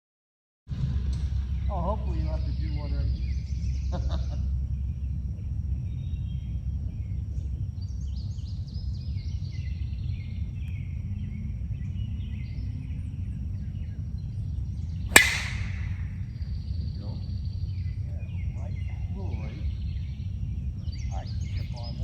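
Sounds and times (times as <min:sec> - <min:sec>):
small birds chirping: 0:01.4 - 0:22.0
steady low rumble: 0:03.0 - 0:17.0
sharp crack: 0:15.1 - 0:16.3.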